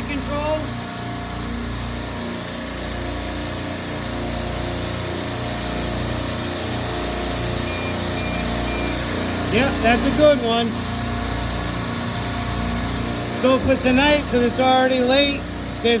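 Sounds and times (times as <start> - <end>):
compressor humming: 0.0 - 16.0
faint high beeps: 7.6 - 9.1.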